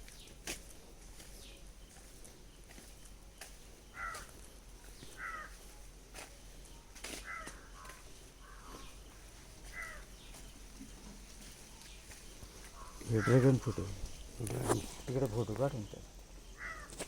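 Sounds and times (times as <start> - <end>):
bird calling: 3.9 - 4.4, 5.0 - 5.6, 7.2 - 10.5, 12.4 - 15.6, 16.5 - 17.0.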